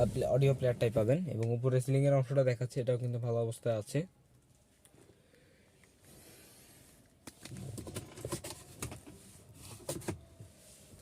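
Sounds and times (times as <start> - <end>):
rustling clicks and knocks: 7.3 - 10.2.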